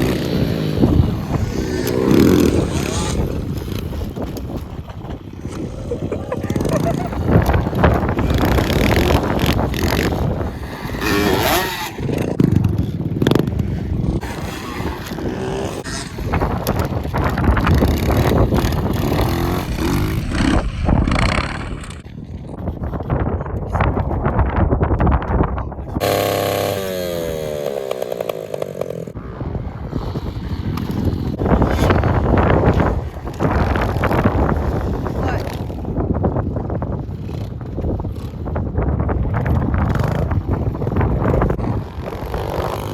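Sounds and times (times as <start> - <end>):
small motorbike engine revving: 0.0 - 4.6, 5.3 - 22.0, 26.0 - 29.2, 29.9 - 36.0, 39.8 - 42.9
wind buffeting microphone: 0.0 - 42.9.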